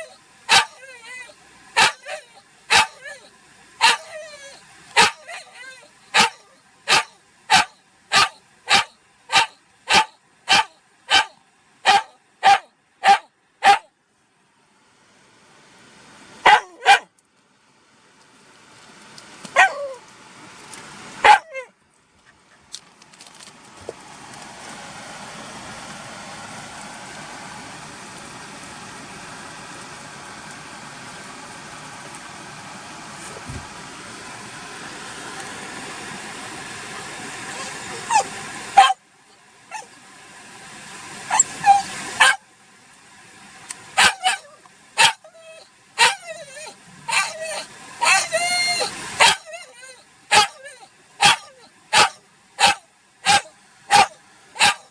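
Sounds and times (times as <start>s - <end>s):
dog barking: 0.0s - 13.9s, 16.4s - 17.1s, 19.6s - 20.0s, 21.2s - 21.7s, 37.6s - 39.0s, 41.3s - 42.4s, 44.0s - 45.3s, 46.0s - 54.9s
steady vehicle noise: 18.1s - 42.4s.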